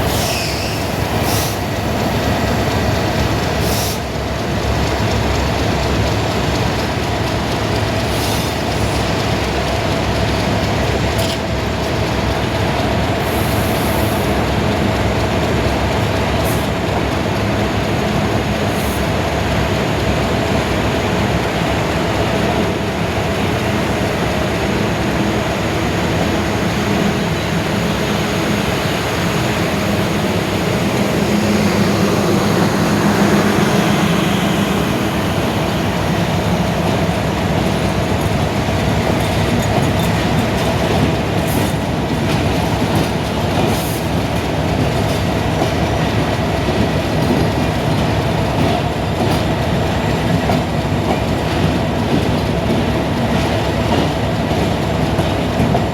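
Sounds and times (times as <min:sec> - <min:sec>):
train rumbling on track: 0:00.0 - 0:55.9.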